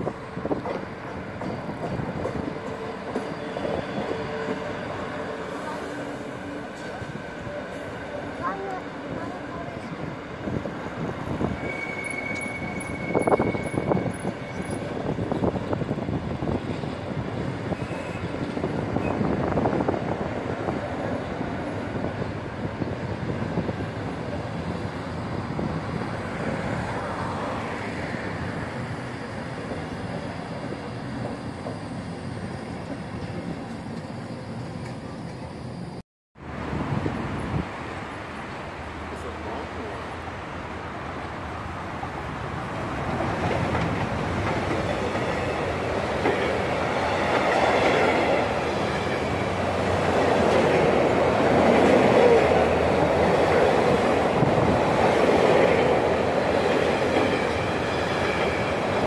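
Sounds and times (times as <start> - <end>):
train wheels rumbling on rail: 0.0 - 59.0
wheels clacking over rail joints: 42.9 - 59.0.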